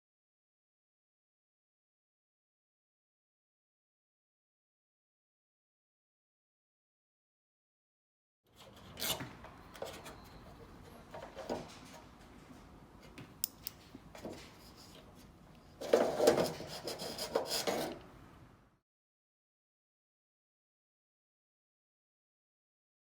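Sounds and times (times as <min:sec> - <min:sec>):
rubbing and scraping: 0:14.2 - 0:18.0.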